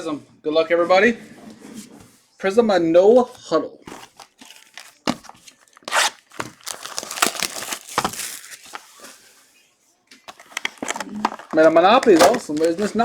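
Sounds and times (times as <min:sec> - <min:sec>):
plastic wrapping tearing and crinkling: 0:03.9 - 0:09.0, 0:10.3 - 0:13.0.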